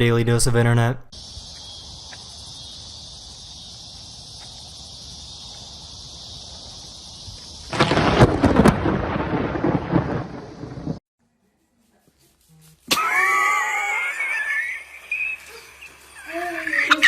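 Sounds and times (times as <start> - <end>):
insect chorus: 1.1 - 11.0, 13.0 - 17.0
thunder crack and rumbling: 7.5 - 11.0.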